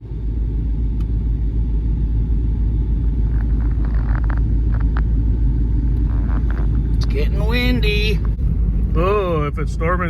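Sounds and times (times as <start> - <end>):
faint clicks and scrapes: 3.0 - 5.1, 5.9 - 7.2.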